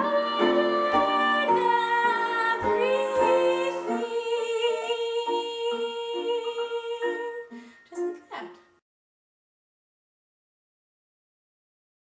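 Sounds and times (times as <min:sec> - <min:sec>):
woman singing wordless melody: 0:00.0 - 0:08.4.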